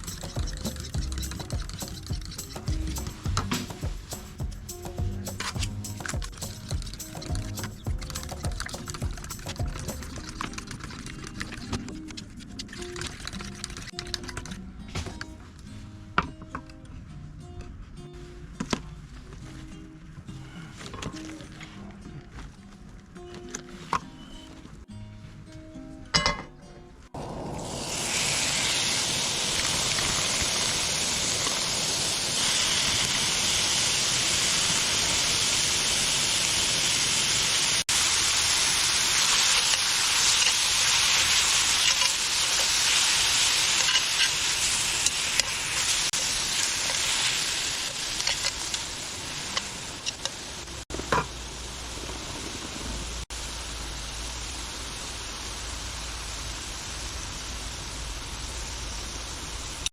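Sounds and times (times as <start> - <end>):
food sizzling in a pan: 0.0 - 10.2, 27.2 - 59.9.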